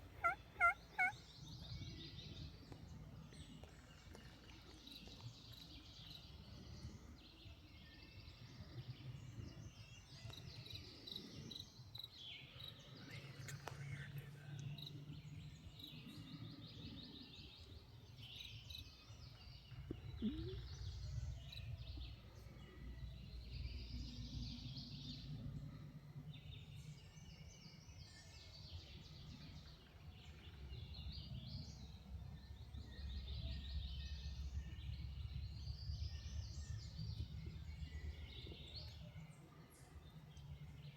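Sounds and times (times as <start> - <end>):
songbirds singing and chirping: 0.0 - 40.9
low steady rumble: 29.0 - 40.9.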